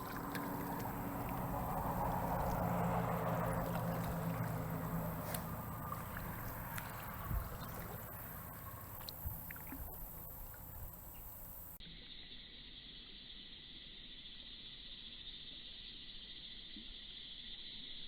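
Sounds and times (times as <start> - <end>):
paddle knocking on hull: 0.0 - 11.4
water lapping and dripping: 0.0 - 11.8
high-pitched insect chorus: 0.0 - 18.0.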